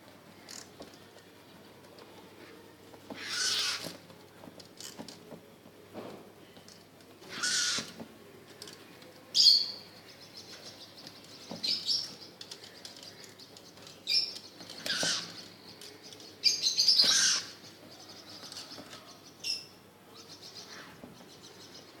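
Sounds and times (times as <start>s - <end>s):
birds chirping: 8.6s - 22.0s.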